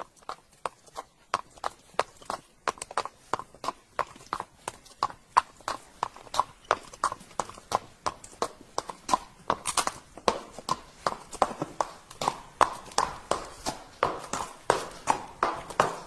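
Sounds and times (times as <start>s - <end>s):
horse hooves clip-clopping: 0.0s - 16.0s.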